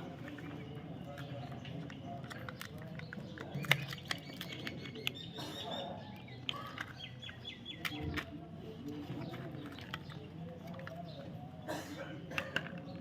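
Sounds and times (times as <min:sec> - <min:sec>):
bird chirping: 0:00.0 - 0:11.4
sharp clicks: 0:01.4 - 0:05.4.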